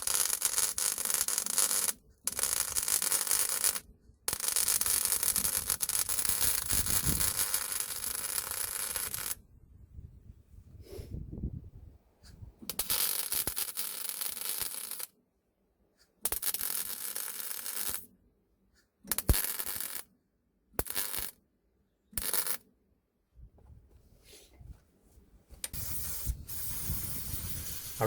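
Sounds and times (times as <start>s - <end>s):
electric arc welder crackling: 0.0s - 9.4s, 12.8s - 15.1s, 19.1s - 20.0s.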